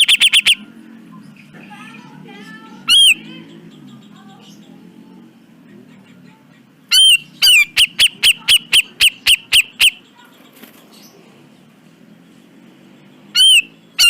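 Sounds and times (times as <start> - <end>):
bulbul calling: 0.0 - 0.8, 2.8 - 4.8, 6.8 - 11.2, 13.1 - 14.0.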